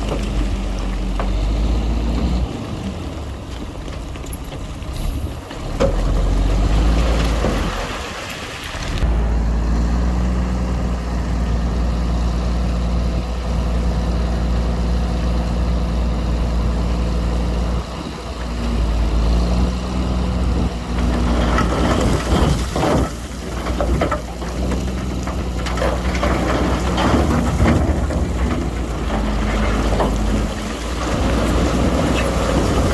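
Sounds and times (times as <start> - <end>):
diesel engine droning: 0.0 - 32.9
metal clanks and knocks: 21.0 - 32.9.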